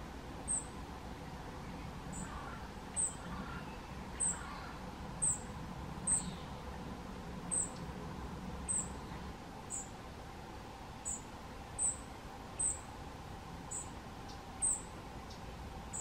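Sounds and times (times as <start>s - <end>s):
faint chirping: 0.4s - 6.6s, 7.5s - 7.9s, 8.6s - 10.0s, 11.0s - 13.0s, 13.7s - 16.0s
small bird high-pitched call: 0.5s - 0.8s, 1.6s - 6.6s, 7.5s - 7.8s, 8.7s - 10.0s, 11.0s - 12.9s, 13.7s - 16.0s.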